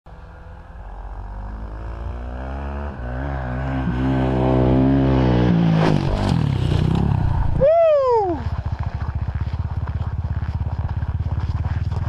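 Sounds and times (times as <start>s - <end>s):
dirt bike engine running: 3.2s - 12.0s.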